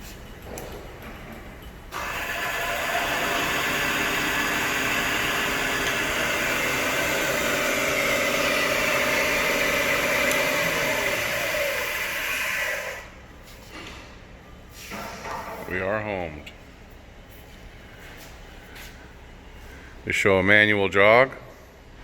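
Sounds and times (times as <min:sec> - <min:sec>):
mill motor whine with hiss: 0:01.9 - 0:13.6.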